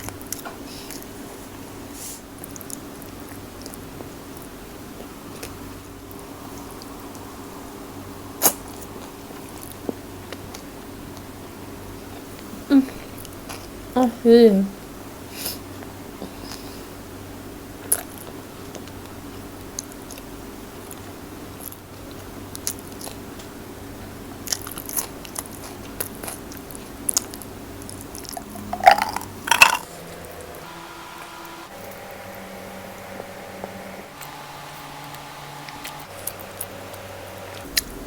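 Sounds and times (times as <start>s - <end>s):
low steady hum: 0.0s - 38.0s
food crunching: 17.8s - 30.0s
person biting and chewing food: 24.4s - 29.9s.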